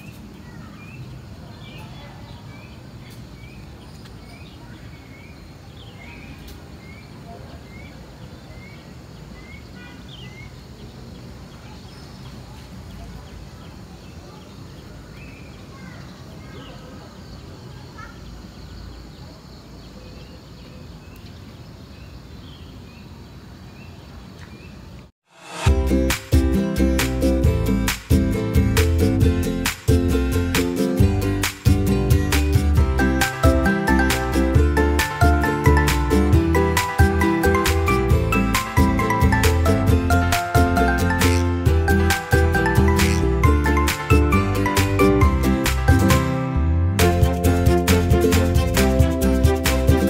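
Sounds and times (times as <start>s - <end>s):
bird chirping: 0.0s - 25.0s.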